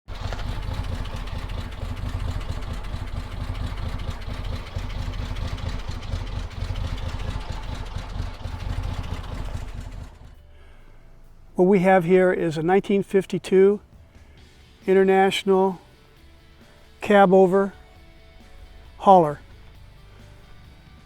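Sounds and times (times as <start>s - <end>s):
truck engine idling: 0.1s - 21.0s.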